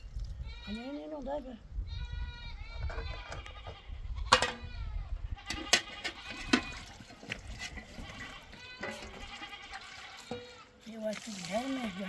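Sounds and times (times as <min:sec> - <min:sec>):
flock bleating: 0:08.0 - 0:10.8.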